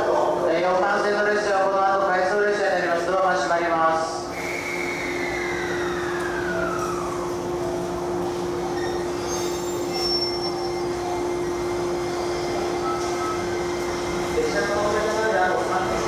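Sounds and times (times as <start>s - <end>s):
electric train hum and rumble: 0.0s - 16.0s
falling whine: 4.3s - 16.0s
faint high squeals: 4.4s - 7.5s, 8.4s - 14.1s.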